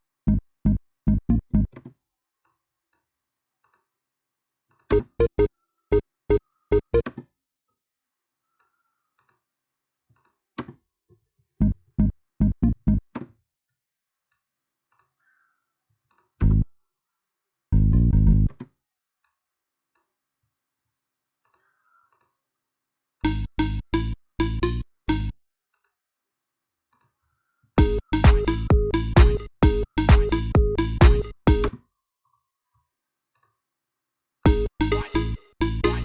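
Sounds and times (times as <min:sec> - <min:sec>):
held synthesizer chord: 0:23.3 - 0:25.3, 0:27.8 - 0:31.6, 0:34.5 - 0:36.0
short synthesizer notes: 0:27.8 - 0:31.7, 0:34.5 - 0:36.0.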